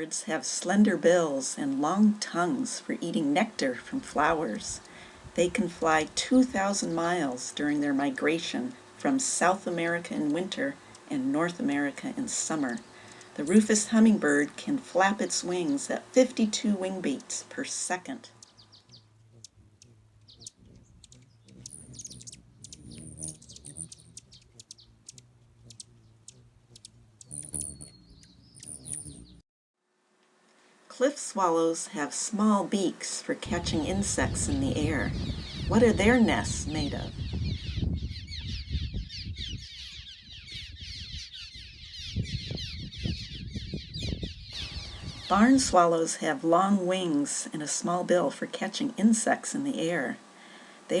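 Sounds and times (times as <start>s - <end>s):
small birds chirping: 3.4s - 29.4s, 34.8s - 45.8s.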